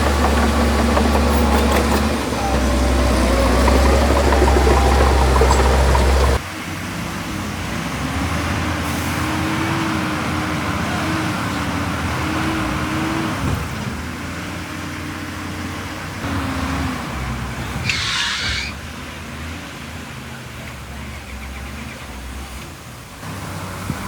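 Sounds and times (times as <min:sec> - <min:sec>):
steady whine: 0:00.0 - 0:06.4
heavy earthmoving machine running: 0:00.0 - 0:15.6.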